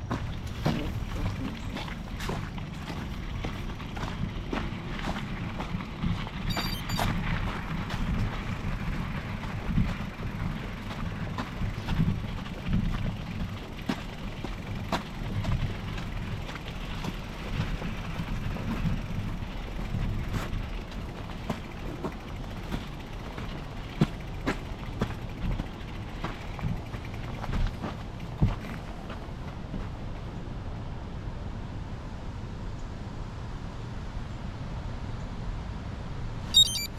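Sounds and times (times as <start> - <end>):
bike tyres rolling on trail: 0.0 - 30.7
bike clicks and rattles: 0.1 - 29.2.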